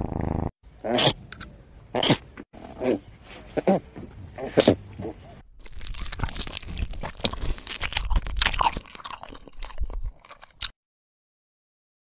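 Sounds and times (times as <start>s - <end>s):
crunching and crackling: 5.4s - 10.8s.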